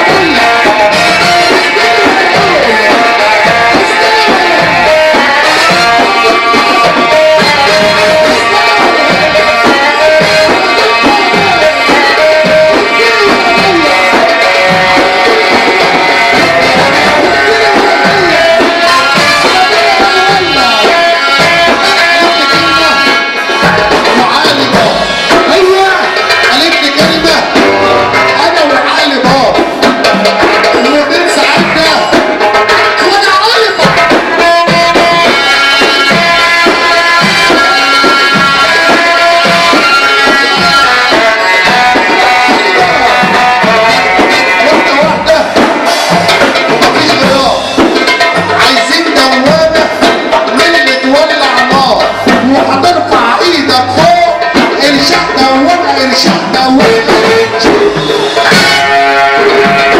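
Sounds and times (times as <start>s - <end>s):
ornamented sliding melody: 0.0s - 29.4s
hand drum rhythm: 0.0s - 59.9s.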